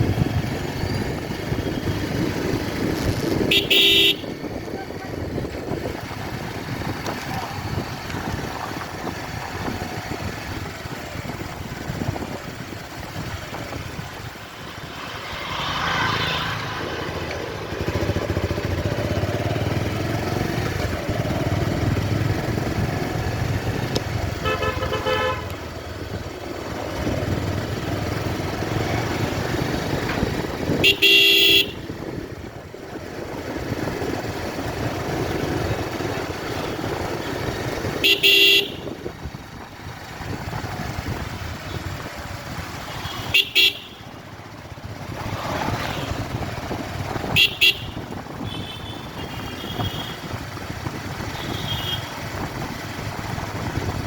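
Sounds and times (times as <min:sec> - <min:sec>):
motorcycle engine running: 0:00.0 - 0:15.8, 0:16.5 - 0:54.0
motor traffic: 0:00.0 - 0:54.0
vehicle horn honking: 0:03.4 - 0:04.4, 0:24.4 - 0:25.6, 0:30.8 - 0:31.9, 0:38.0 - 0:39.0, 0:42.8 - 0:44.2, 0:47.3 - 0:50.3, 0:51.3 - 0:52.2.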